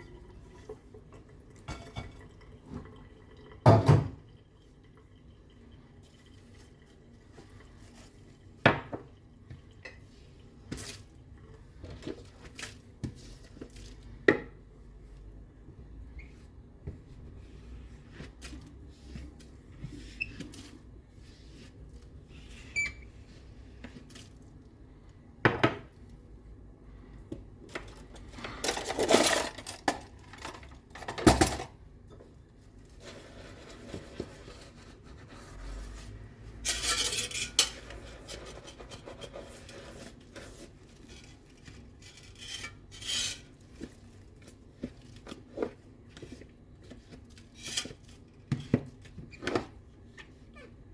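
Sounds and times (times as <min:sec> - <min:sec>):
dishes and cutlery clinking: 0:01.7 - 0:02.3, 0:36.6 - 0:40.0.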